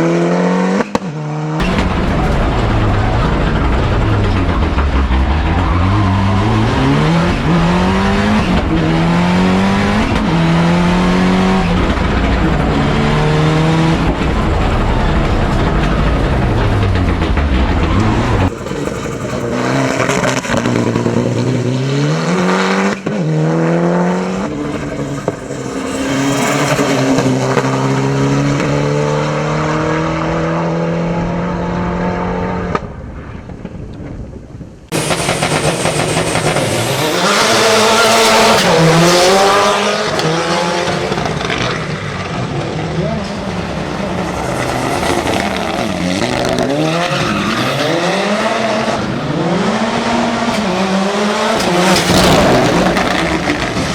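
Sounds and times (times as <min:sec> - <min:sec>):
race car engine revving: 0:00.0 - 0:32.9, 0:34.9 - 0:53.9.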